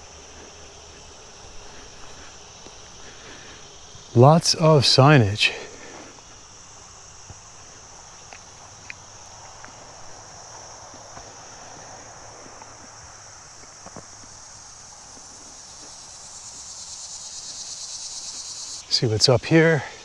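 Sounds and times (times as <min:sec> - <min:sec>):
footsteps: 0:00.0 - 0:05.2
crickets chirring: 0:00.0 - 0:20.0.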